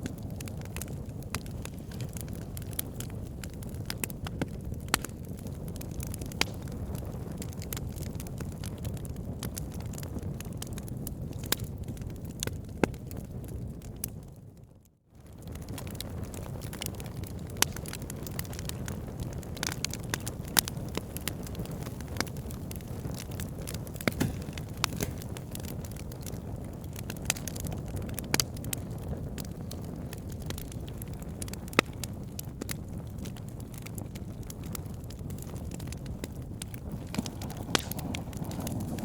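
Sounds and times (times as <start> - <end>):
logs crackling and popping: 0.0 - 14.4, 15.2 - 39.0
low rush of flame: 15.4 - 30.7, 33.8 - 39.0.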